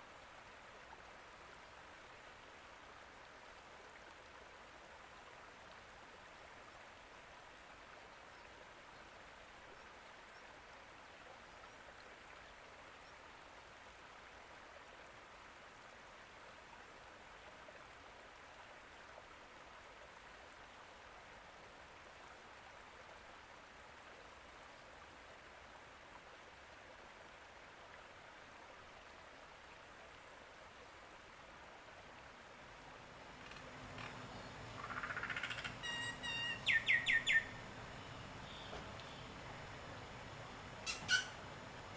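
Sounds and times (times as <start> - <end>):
running water: 26.0 - 41.9.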